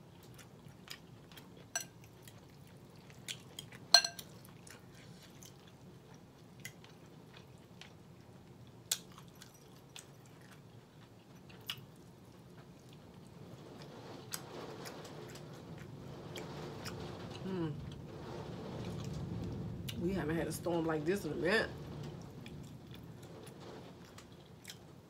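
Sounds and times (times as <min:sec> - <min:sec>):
low background noise: 0:00.0 - 0:25.0
person chewing: 0:00.1 - 0:08.0, 0:08.9 - 0:12.1
fork clinking on glass bowl: 0:01.8 - 0:02.0, 0:03.9 - 0:04.3.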